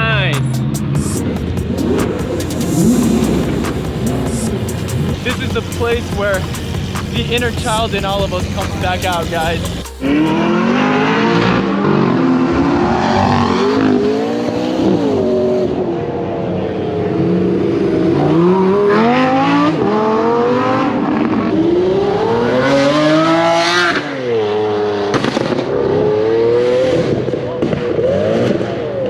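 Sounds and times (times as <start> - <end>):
sports car engines revving: 0.0 - 29.0.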